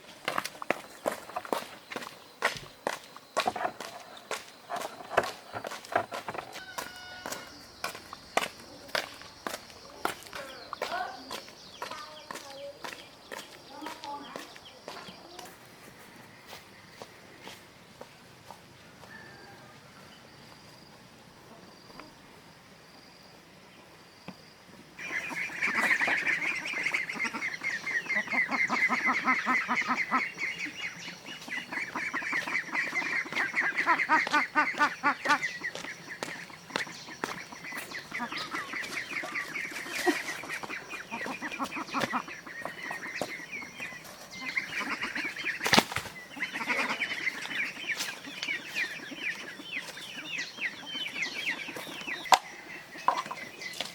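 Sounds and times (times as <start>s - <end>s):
flock of fowl calling: 3.4s - 11.9s, 18.8s - 20.2s, 25.0s - 53.9s.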